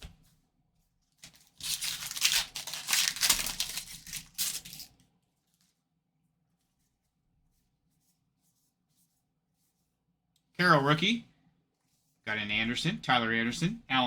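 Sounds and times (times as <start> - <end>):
wrapper tearing and crinkling: 1.2 - 5.0.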